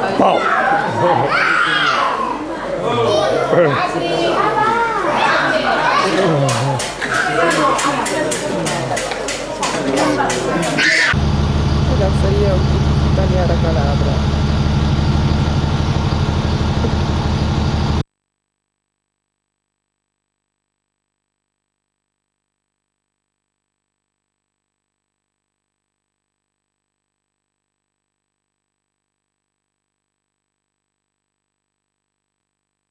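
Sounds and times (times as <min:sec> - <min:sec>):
engine running steadily: 0:11.1 - 0:18.0.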